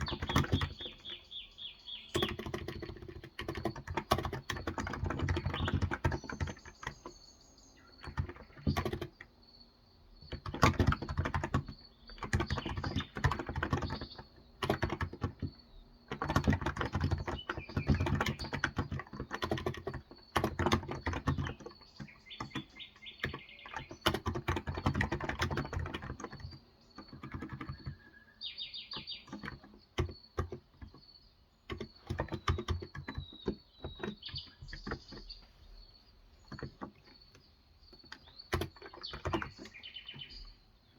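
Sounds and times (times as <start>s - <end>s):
keyboard typing: 0.0s - 7.2s, 7.8s - 9.4s, 10.2s - 40.6s
birds chirping: 0.0s - 40.9s.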